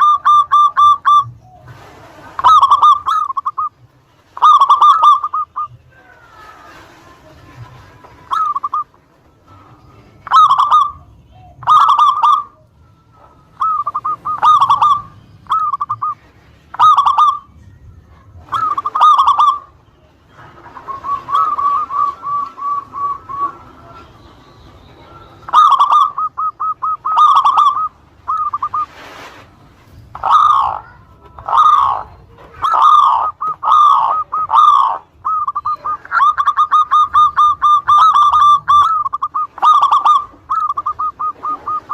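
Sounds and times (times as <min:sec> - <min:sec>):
dove cooing: 0:00.0 - 0:41.9.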